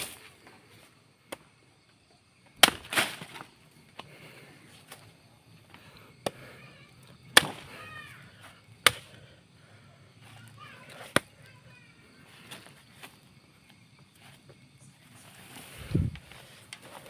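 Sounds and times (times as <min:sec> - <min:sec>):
machete chopping strikes: 0:02.6 - 0:03.4, 0:07.3 - 0:07.7, 0:08.8 - 0:09.1.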